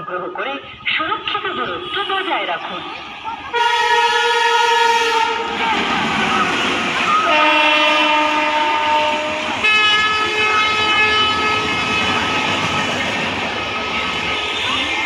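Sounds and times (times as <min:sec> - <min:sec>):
train rail noise: 0:00.0 - 0:15.0
locomotive horn blasts: 0:01.6 - 0:06.2, 0:07.2 - 0:12.9.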